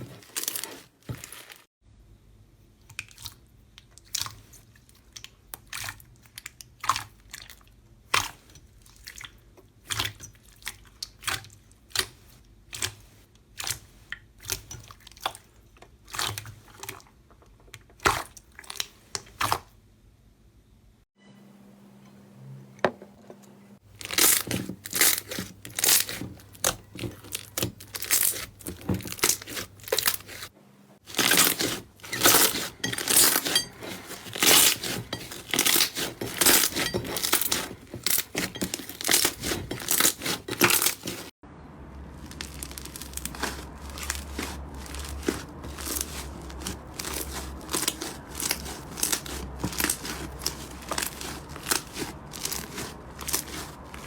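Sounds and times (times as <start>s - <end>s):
slime crackling and popping: 42.2s - 54.0s.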